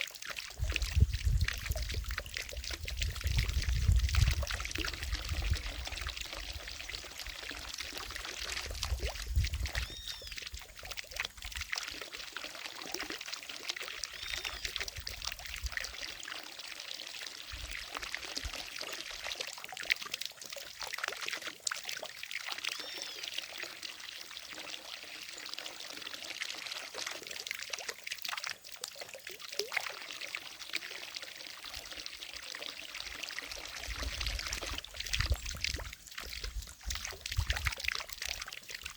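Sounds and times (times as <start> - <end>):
fountain water splashing into pond: 0.0 - 38.9.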